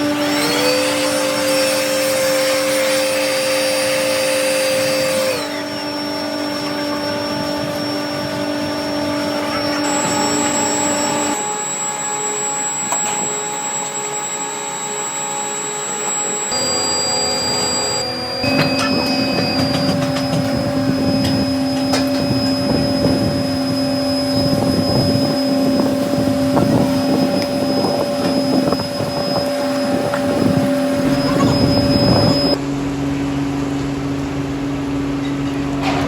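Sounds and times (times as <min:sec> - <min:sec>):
different machine hum: 0:00.0 - 0:36.0
workshop machinery humming: 0:00.0 - 0:36.0.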